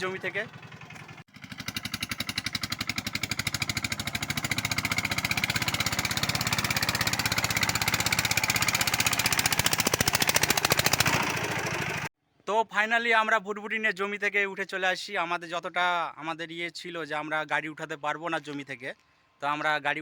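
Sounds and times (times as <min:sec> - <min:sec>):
diesel engine chugging under load: 0:00.0 - 0:12.1.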